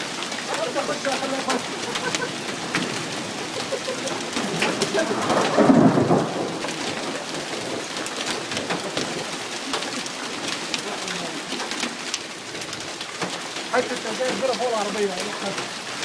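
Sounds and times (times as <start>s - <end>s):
heavy rain falling: 0.0s - 16.0s
thunder rumble: 0.9s - 13.0s.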